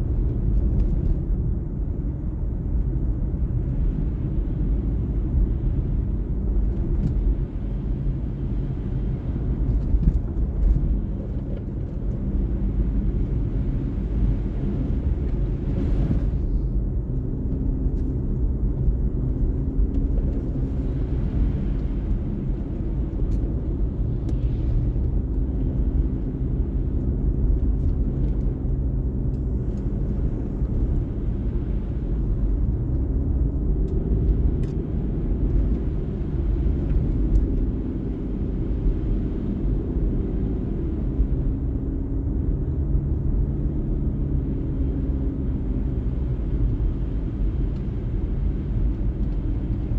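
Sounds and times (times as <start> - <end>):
car engine and tyres rumbling: 0.0 - 49.9.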